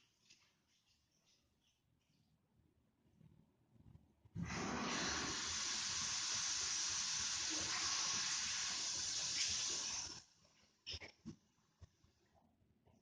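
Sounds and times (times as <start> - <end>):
water rushing through pipes: 4.4 - 10.3.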